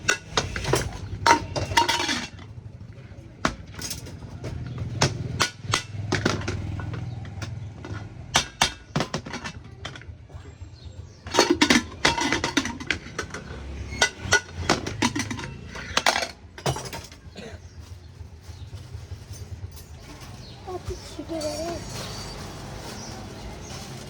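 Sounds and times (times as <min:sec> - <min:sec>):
hand tools clinking and tapping: 0:00.0 - 0:02.6, 0:03.4 - 0:10.2, 0:11.2 - 0:24.0.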